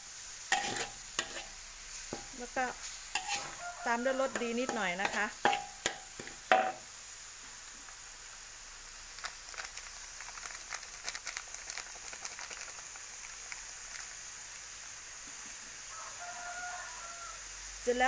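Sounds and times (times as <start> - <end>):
meat sizzling in a wok: 0.0 - 18.0
faint ticks and crackles: 8.8 - 15.6.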